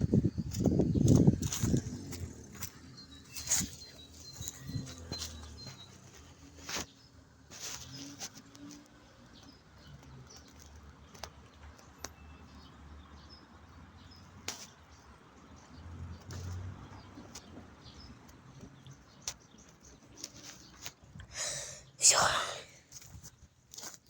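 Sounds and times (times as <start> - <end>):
wind on microphone: 0.0 - 2.7
faint bird chirps: 0.3 - 7.1.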